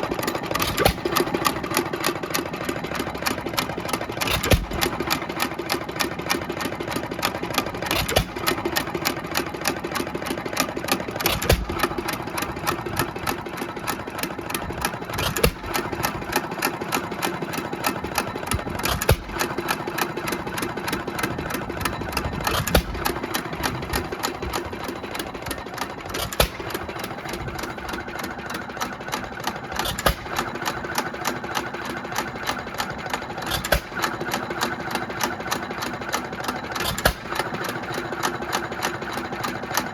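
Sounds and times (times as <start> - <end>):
engine firing bangs: 0.0 - 1.6, 4.2 - 5.5, 7.8 - 9.1, 11.2 - 13.1, 14.1 - 16.4, 17.6 - 28.1, 29.2 - 30.8, 33.4 - 34.5
mechanical clatter: 0.0 - 39.9.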